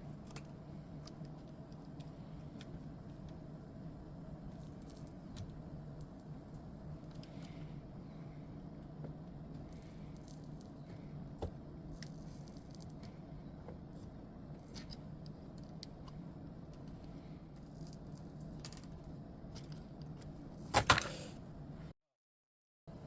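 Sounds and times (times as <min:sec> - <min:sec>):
small parts clicking and scraping: 0:14.0 - 0:21.4.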